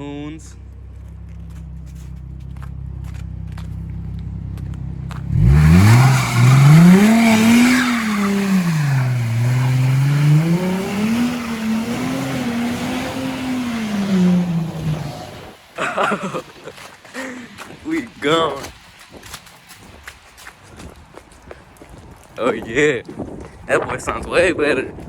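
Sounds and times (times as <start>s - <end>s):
car engine revving hard: 5.3s - 16.4s.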